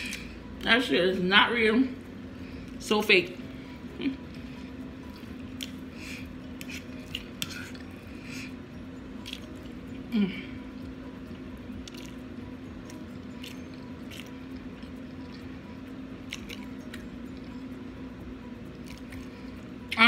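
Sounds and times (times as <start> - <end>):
steady low hum: 0.0 - 20.0
person chewing: 4.0 - 17.8, 18.7 - 19.7.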